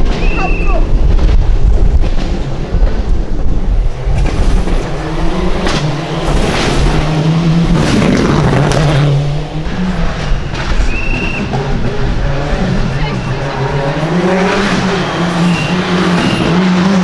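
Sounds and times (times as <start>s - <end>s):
sharp cracks: 0.0s - 16.6s
rally car engine at high revs: 0.0s - 17.0s.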